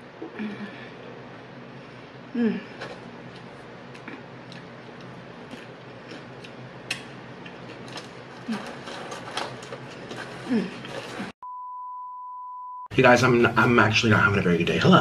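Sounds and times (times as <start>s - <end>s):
low steady hum: 0.0s - 15.0s
chewing crunchy chips: 2.8s - 11.2s.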